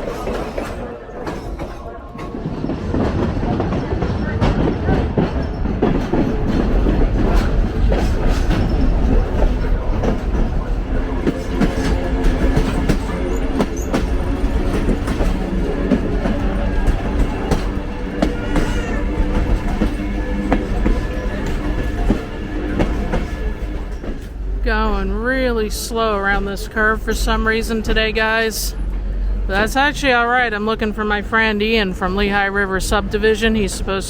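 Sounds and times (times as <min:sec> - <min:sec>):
clickety-clack over rail joints: 0:00.0 - 0:34.0
train wheels rumbling on track: 0:00.0 - 0:34.0
train wheels squealing: 0:08.1 - 0:09.9, 0:11.4 - 0:15.2, 0:16.2 - 0:24.3.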